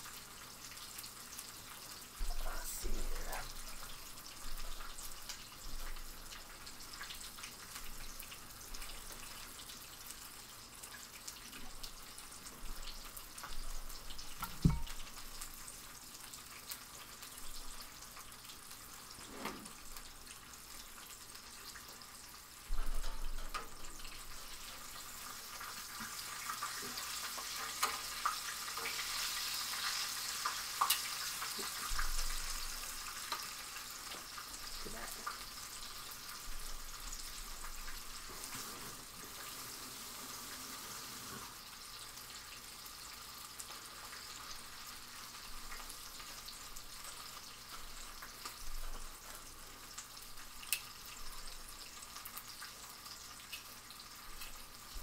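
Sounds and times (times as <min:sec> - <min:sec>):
chicken frying in oil: 0:00.0 - 0:55.0
sharp knock: 0:14.6 - 0:14.9.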